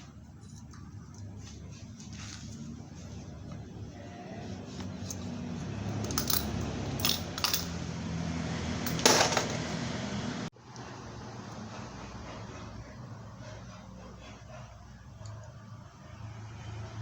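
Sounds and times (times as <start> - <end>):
metal parts and tools clinking: 5.0 - 7.8, 8.8 - 9.7.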